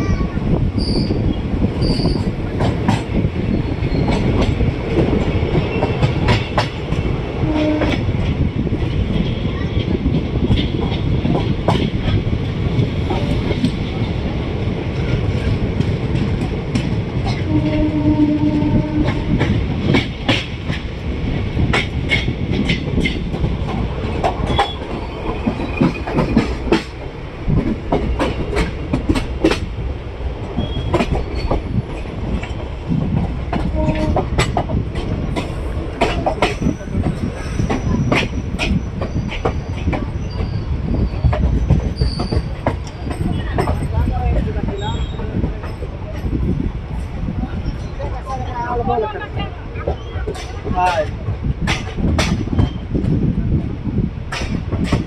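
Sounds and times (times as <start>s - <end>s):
train wheels clacking over rail joints: 1.7s - 14.1s, 14.9s - 29.8s, 30.4s - 46.4s, 49.8s - 53.4s, 54.3s - 55.0s
train horn: 7.4s - 8.0s, 17.5s - 19.4s, 33.6s - 34.4s.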